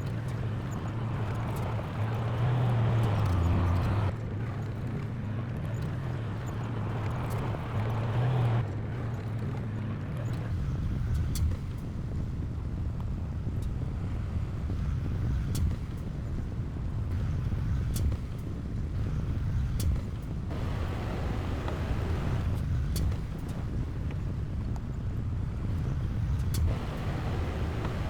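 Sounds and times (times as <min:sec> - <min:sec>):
heavy machinery low rumble: 0:10.5 - 0:28.0.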